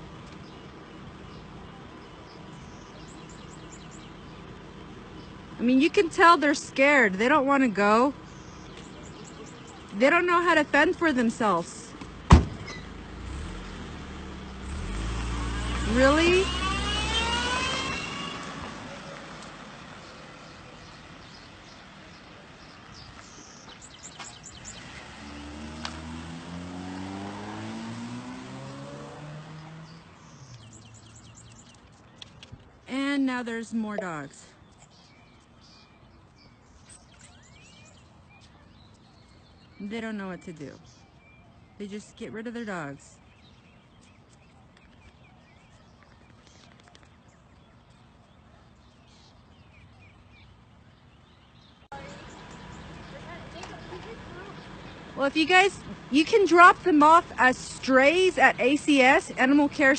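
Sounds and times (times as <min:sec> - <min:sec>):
small birds chirping: 0:00.0 - 0:59.9
car engine accelerating: 0:12.1 - 0:31.7, 0:51.8 - 0:59.9.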